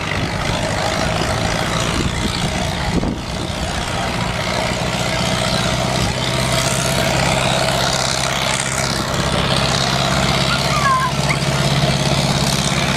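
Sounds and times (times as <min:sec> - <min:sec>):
tractor engine running: 0:00.0 - 0:12.9.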